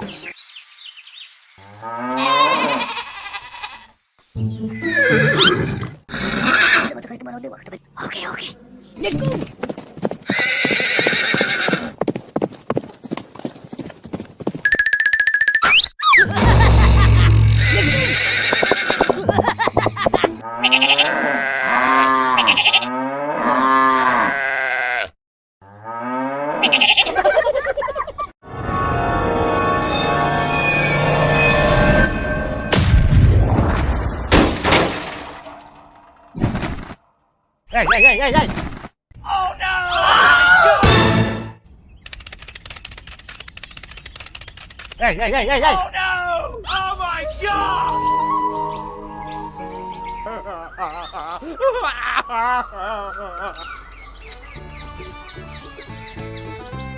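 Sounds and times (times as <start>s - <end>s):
long bleating calls: 1.7s - 4.0s, 20.4s - 25.2s
horse whinnying: 2.2s - 3.9s, 4.7s - 6.9s, 10.3s - 11.9s, 17.6s - 19.2s.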